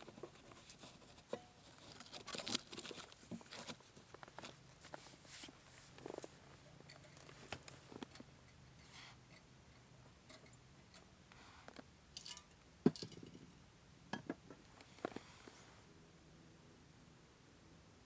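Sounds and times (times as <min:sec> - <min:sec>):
small objects clicking and knocking: 0:11.7 - 0:13.5.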